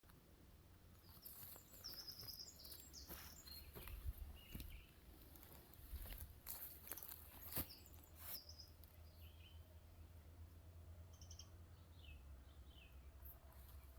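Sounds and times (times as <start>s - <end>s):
faint birdsong chirping: 0.1s - 13.9s.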